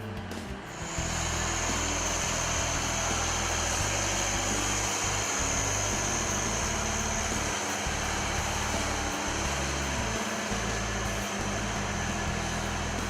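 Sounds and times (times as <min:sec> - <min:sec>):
high whine: 0:00.0 - 0:13.0
tractor diesel engine idling: 0:00.7 - 0:13.0.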